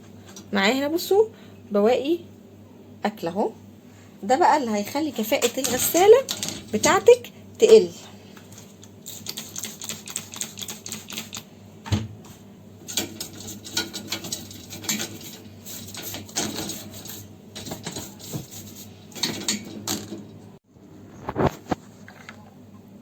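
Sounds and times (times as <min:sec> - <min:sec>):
scrubbing plastic spray arm: 0:08.7 - 0:11.5.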